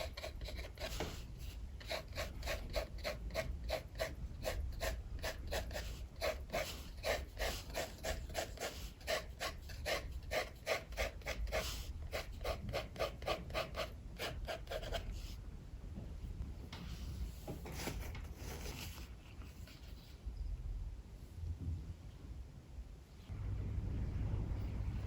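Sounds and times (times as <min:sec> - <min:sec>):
pencil sketching strokes on paper: 0:00.0 - 0:15.4
strong wind rumble: 0:23.3 - 0:25.0.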